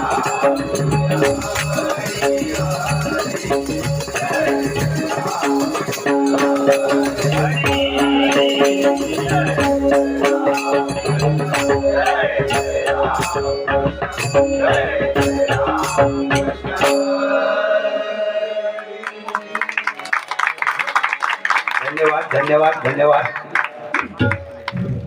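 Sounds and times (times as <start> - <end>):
harmonium steady notes: 0.0 - 19.6.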